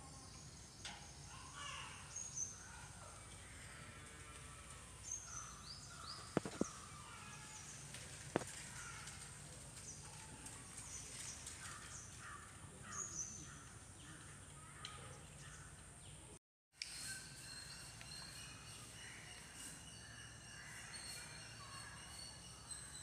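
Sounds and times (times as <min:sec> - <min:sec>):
birds chirping: 0:00.0 - 0:16.4
lower bird calls: 0:01.5 - 0:09.2.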